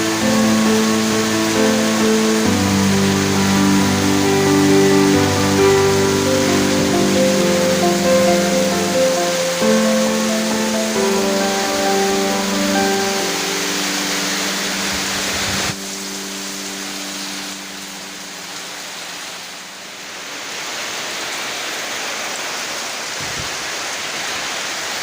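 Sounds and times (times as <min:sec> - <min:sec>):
held musical tones: 0:00.0 - 0:19.9
steady rain hiss: 0:00.0 - 0:25.0.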